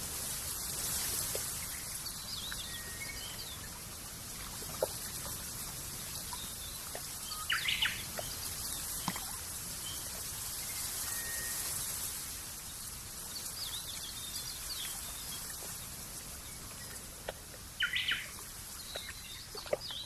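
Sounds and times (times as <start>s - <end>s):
steady background hiss: 0.0s - 20.0s
birds chirping: 6.2s - 10.2s, 13.7s - 20.0s.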